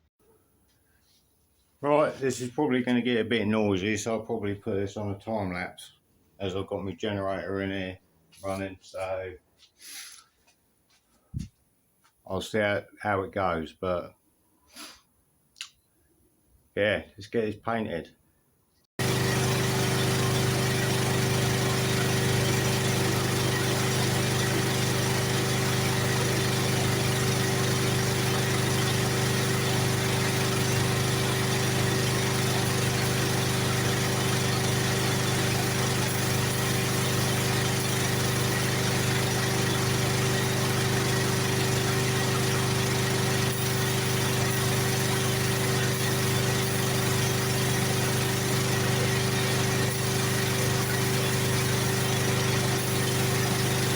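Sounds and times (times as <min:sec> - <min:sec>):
generator engine humming: 0:19.0 - 0:53.9.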